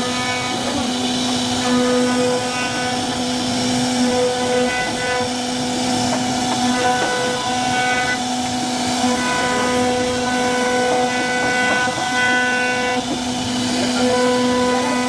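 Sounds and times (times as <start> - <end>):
hiss of wood cutting: 0.0 - 15.0
router spindle whine: 0.0 - 15.0.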